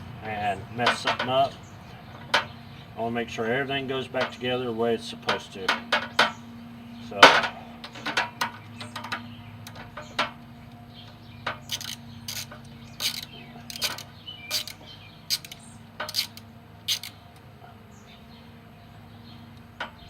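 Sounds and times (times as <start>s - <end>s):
metal tools clinking on parts: 0.8s - 1.6s, 7.1s - 17.2s.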